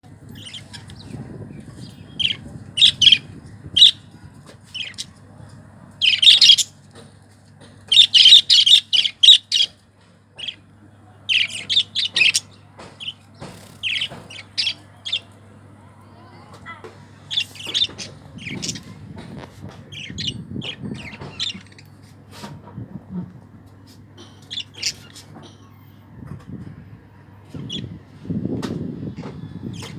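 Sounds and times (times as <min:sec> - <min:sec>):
steady low hum: 0:00.0 - 0:29.9
budgerigars chirping: 0:01.9 - 0:03.2, 0:03.8 - 0:04.0, 0:04.8 - 0:05.1, 0:06.0 - 0:06.7, 0:07.9 - 0:09.7, 0:10.4 - 0:10.6, 0:11.3 - 0:13.2, 0:13.8 - 0:15.3, 0:17.3 - 0:19.0, 0:19.9 - 0:21.8, 0:24.4 - 0:25.1.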